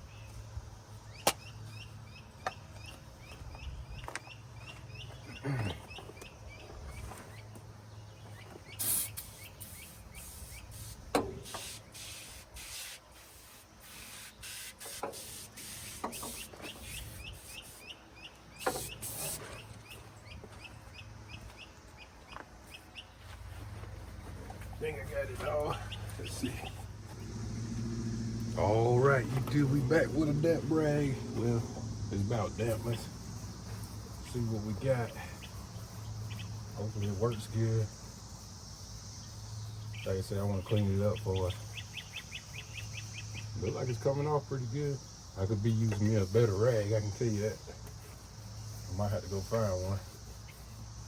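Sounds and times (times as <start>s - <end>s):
steady chirping: 0.0s - 23.2s, 24.1s - 51.0s
aerosol can spraying: 8.8s - 17.8s.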